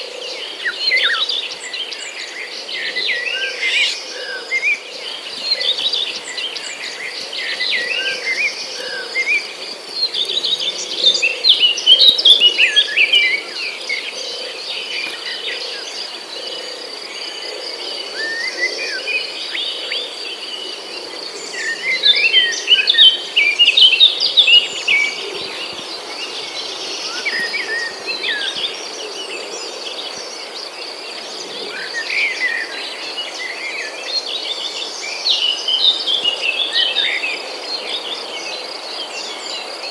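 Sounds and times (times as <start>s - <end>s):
high insect drone: 0.0s - 39.9s
songbirds chirping and singing: 0.0s - 39.9s.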